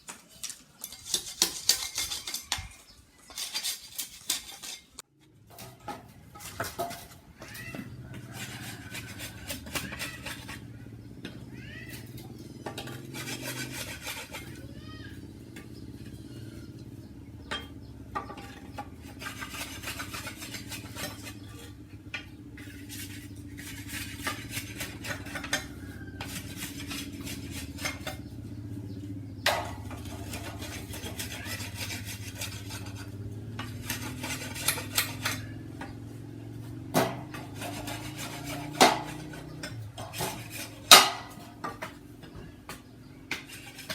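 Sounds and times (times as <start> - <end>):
hard objects clinking and knocking: 0.0 - 14.6.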